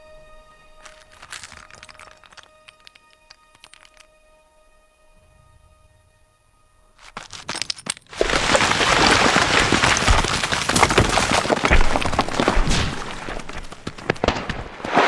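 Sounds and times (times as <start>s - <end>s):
rocks clattering down a slope: 0.8s - 4.1s, 7.0s - 15.0s.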